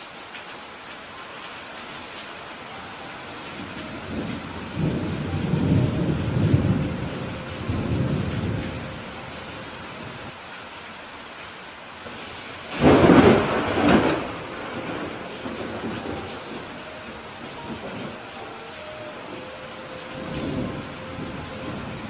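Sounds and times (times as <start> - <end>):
steady rain: 0.0 - 22.0
low rolling thunder rumble: 3.0 - 10.3, 12.1 - 22.0
sharp thunderclap: 12.7 - 16.7.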